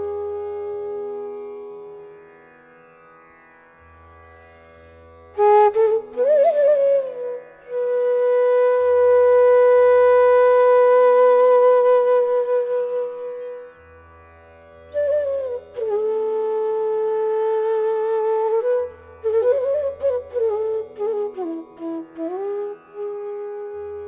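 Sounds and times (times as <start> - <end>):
flute melody: 0.0 - 1.6, 5.4 - 13.8, 15.0 - 24.0.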